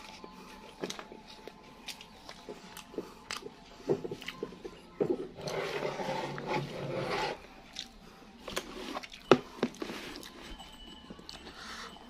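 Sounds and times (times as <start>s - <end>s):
person chewing: 0.0s - 5.5s, 7.6s - 10.5s.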